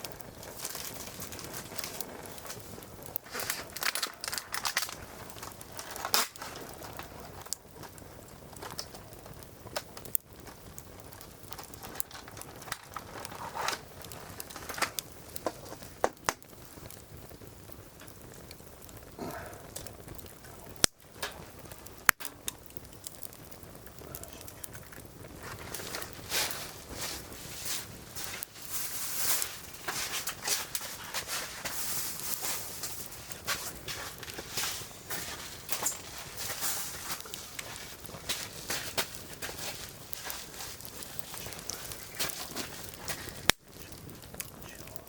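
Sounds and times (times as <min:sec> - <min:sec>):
firewood crackling and popping: 0:00.0 - 0:45.0
low fire hiss: 0:00.0 - 0:45.0
sharp wood snaps: 0:03.7 - 0:07.6, 0:14.4 - 0:16.5.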